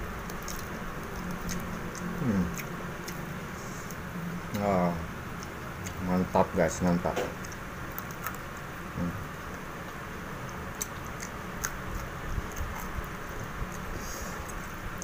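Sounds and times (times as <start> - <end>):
low background hum: 0.0 - 15.0
chewing clicks and smacks: 0.2 - 3.3, 5.4 - 6.0, 7.1 - 8.7, 9.5 - 15.0.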